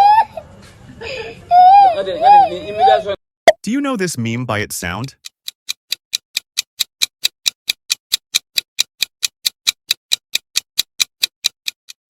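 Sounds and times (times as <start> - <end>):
clock-like timer ticking: 3.5 - 12.0.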